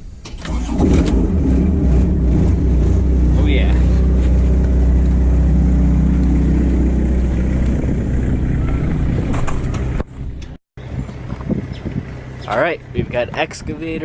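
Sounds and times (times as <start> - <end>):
large engine running: 0.3 - 10.6.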